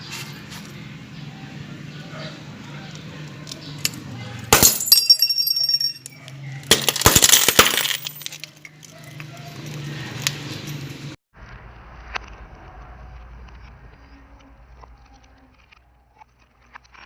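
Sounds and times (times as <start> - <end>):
high ringing: 4.5 - 6.2.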